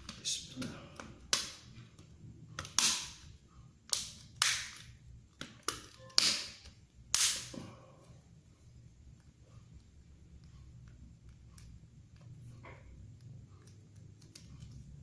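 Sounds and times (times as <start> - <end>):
sharp plastic snaps: 0.0 - 7.6.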